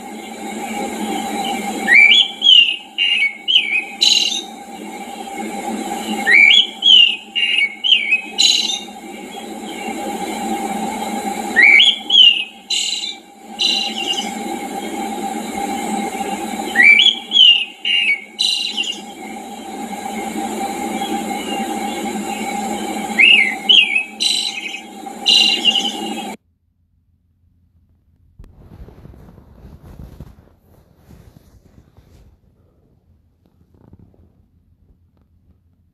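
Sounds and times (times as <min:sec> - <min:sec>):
high buzzy bird calls: 0:00.0 - 0:26.4
songbird whistled phrase: 0:01.8 - 0:04.5, 0:06.2 - 0:08.9, 0:11.5 - 0:14.3, 0:16.7 - 0:19.1, 0:23.2 - 0:26.0.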